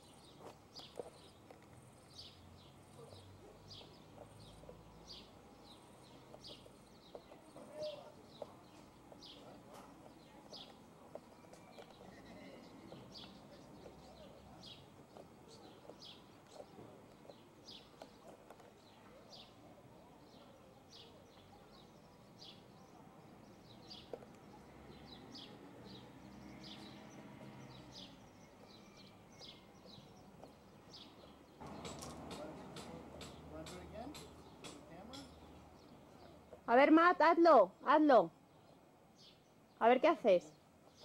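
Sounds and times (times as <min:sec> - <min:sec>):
faint bird chirps: 0:10.2 - 0:14.4.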